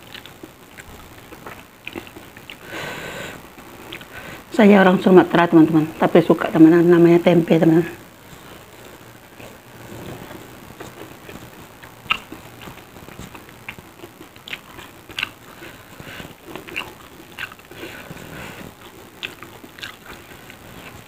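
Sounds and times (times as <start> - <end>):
wet mouth sounds: 0.0 - 2.7, 9.4 - 21.0
chewing crispy fritters: 0.0 - 4.2, 8.0 - 21.0.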